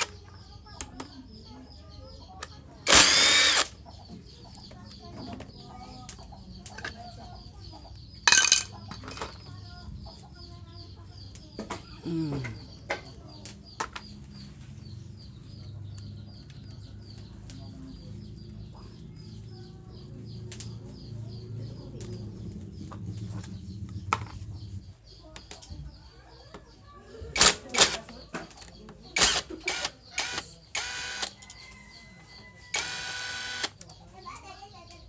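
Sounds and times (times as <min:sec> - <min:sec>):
birds chirping: 0:00.0 - 0:35.0.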